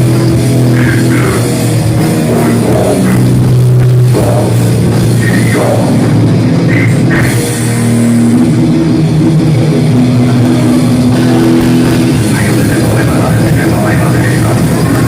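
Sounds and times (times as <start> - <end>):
distorted electric guitars: 0.0 - 15.0
drum kit: 0.0 - 15.0.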